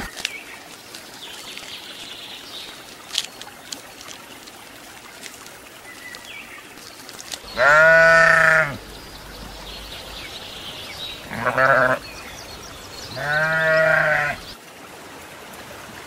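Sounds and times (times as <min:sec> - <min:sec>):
goat bleating: 0:07.5 - 0:08.8, 0:11.2 - 0:12.0, 0:13.2 - 0:14.5.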